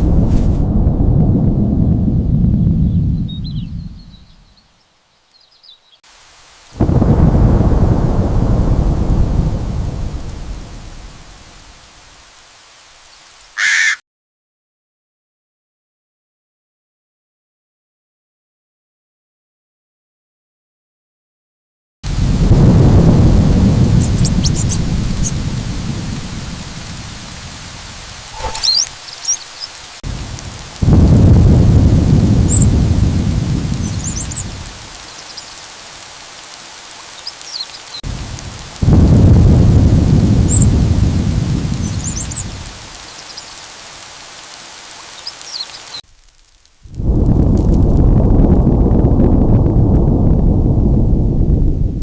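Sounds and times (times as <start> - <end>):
rolls of thunder: 0.0 - 4.4, 6.8 - 11.8, 22.2 - 29.0, 30.1 - 34.9, 38.1 - 42.8, 46.9 - 52.0
steady rain: 0.0 - 13.6, 22.1 - 52.0
short high bird chirps: 28.3 - 29.8.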